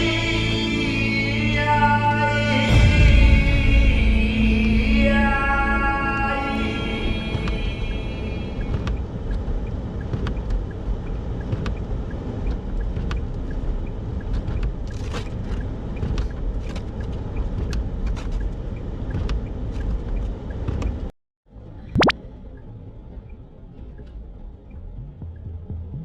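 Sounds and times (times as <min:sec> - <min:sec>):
light ticks: 0:08.6 - 0:21.1.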